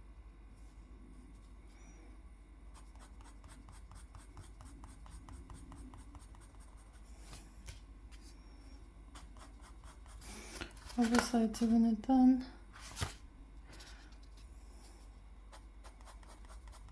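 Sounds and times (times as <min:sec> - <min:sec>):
drawing strokes on paper: 0:02.8 - 0:07.4, 0:09.1 - 0:10.4, 0:15.5 - 0:16.9.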